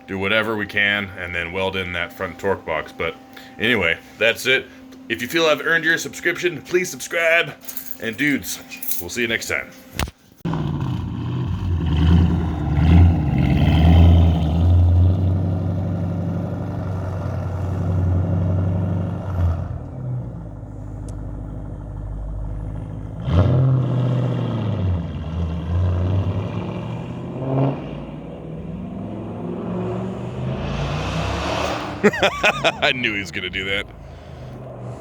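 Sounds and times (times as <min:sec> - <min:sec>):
car engine revving: 0:10.4 - 0:35.0.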